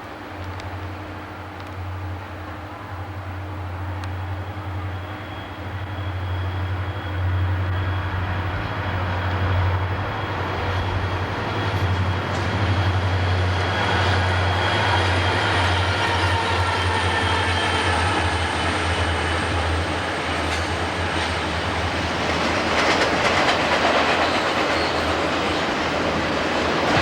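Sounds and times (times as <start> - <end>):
train running on rails: 0.0 - 27.0.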